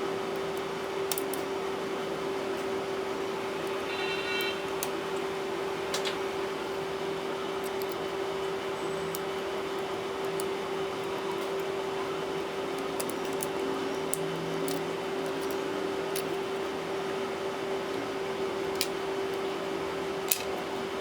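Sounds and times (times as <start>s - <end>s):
steady tonal hum: 1.6s - 11.0s.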